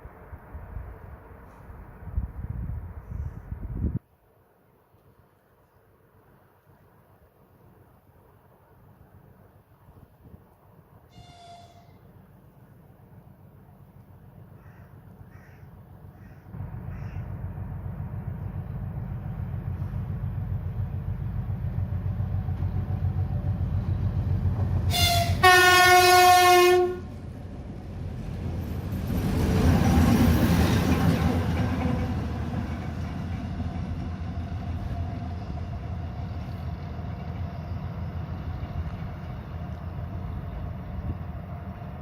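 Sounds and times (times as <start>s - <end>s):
rush of passing train: 0.0s - 42.0s
train rumbling: 5.0s - 42.0s
train horn: 11.1s - 12.2s, 24.9s - 27.2s.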